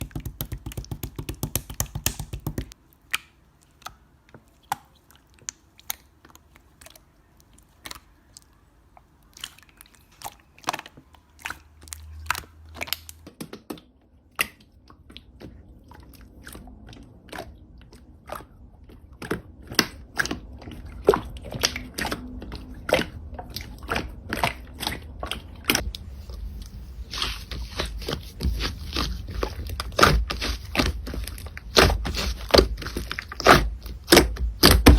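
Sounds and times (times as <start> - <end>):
slime kneaded by hand clicking: 0.0 - 7.0.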